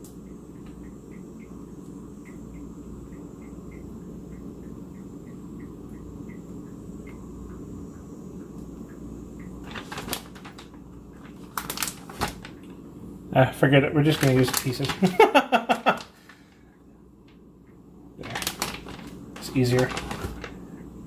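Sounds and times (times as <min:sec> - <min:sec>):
low kitchen hum: 0:00.0 - 0:21.0
hands handling food: 0:09.7 - 0:12.6, 0:14.1 - 0:16.4, 0:18.2 - 0:20.6.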